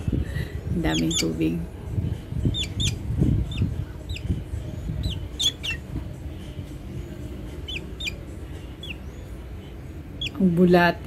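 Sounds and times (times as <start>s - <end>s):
bird chirping: 0.8s - 1.6s, 2.4s - 6.2s, 7.0s - 10.6s.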